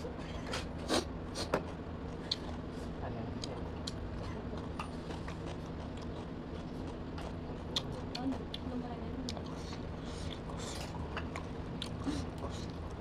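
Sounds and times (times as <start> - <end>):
person chewing with clicks and smacks: 0.5 - 13.0.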